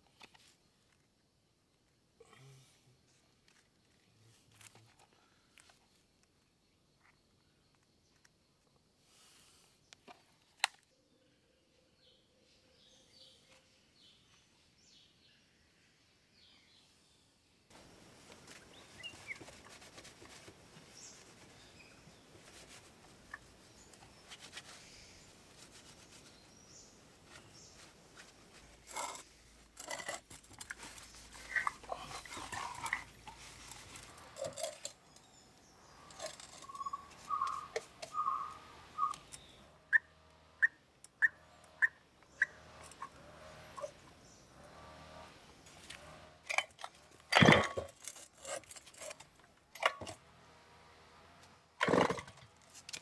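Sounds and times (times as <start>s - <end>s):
faint outdoor background noise: 0.0s - 53.0s
bird chirps and calls: 34.4s - 43.2s.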